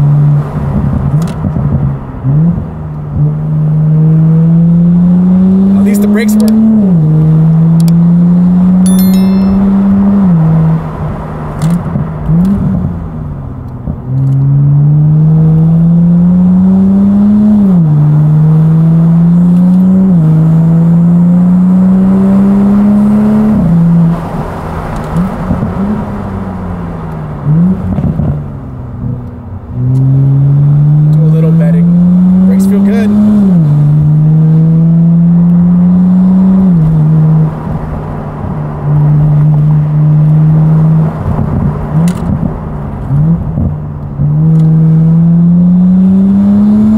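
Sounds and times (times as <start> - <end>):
car engine accelerating through gears: 0.0 - 8.8, 10.6 - 46.9.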